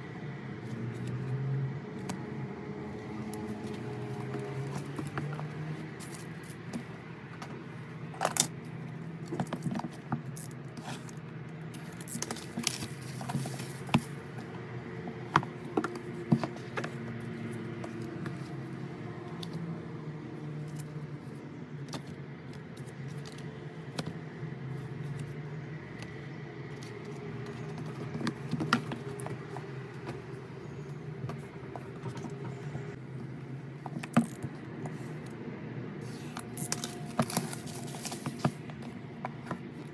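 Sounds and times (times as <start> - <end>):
packaging clicks and rattles: 11.8 - 14.5, 26.0 - 30.4, 36.1 - 39.9.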